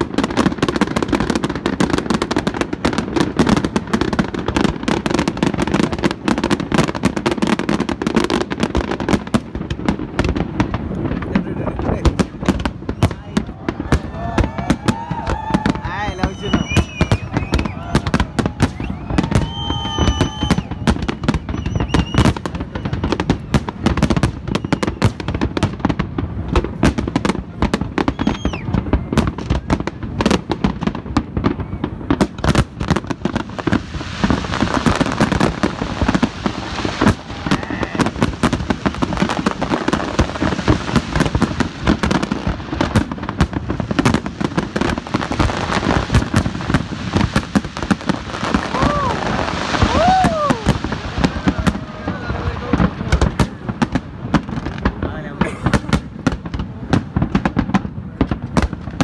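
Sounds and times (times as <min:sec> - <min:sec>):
firework crackle: 0:00.0 - 0:59.0.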